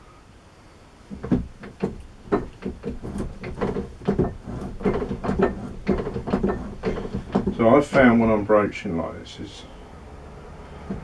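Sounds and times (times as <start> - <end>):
metal clunks and scraping strokes: 1.1 - 8.4, 10.6 - 11.0.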